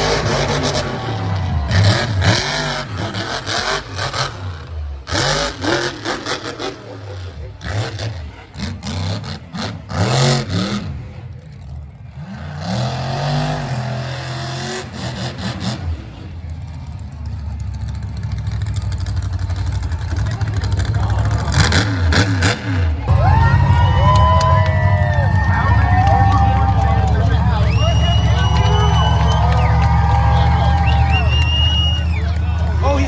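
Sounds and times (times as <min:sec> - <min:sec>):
truck engine revving: 0:00.0 - 0:33.0.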